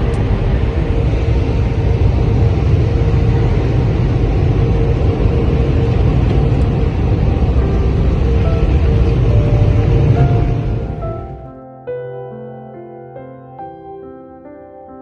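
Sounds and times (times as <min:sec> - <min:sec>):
car wash deep rushing noise: 0:00.0 - 0:11.5.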